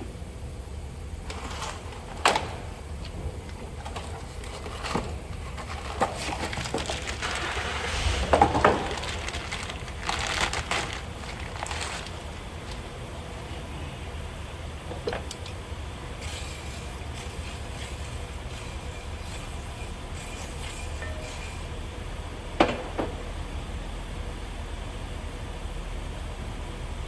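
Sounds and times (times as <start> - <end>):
scraping and rustling: 3.6 - 12.3.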